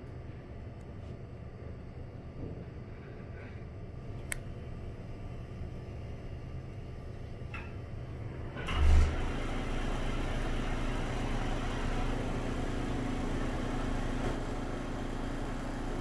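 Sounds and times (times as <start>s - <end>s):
exhaust fan humming: 3.3s - 16.0s.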